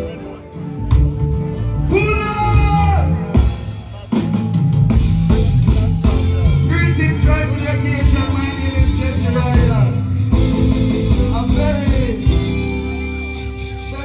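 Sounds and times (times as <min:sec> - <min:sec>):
reggae band playing: 0:00.0 - 0:14.0
held chord tones: 0:04.8 - 0:14.0
man singing: 0:05.7 - 0:14.0.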